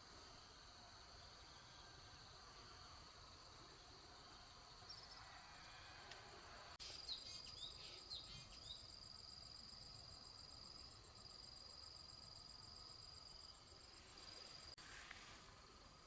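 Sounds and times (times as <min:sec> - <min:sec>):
bird chirps: 0:06.8 - 0:08.9.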